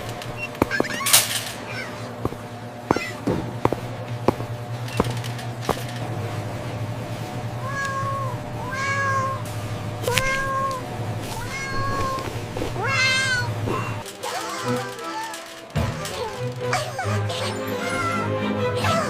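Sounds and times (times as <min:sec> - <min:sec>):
cat meowing: 0:02.9 - 0:03.3, 0:07.6 - 0:09.4, 0:10.0 - 0:14.6.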